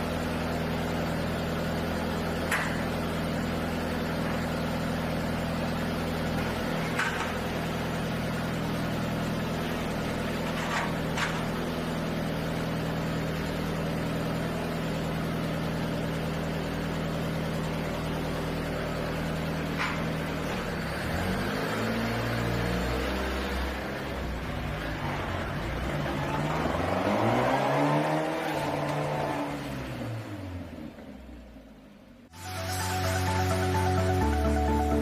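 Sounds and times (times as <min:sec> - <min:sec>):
off-road vehicle engine revving: 0:20.4 - 0:30.8.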